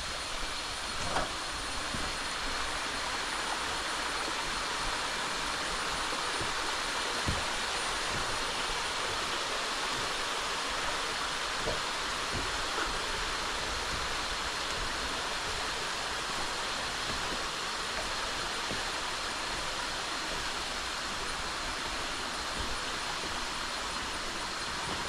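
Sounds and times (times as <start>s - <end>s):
creek water rushing: 0.0s - 25.0s.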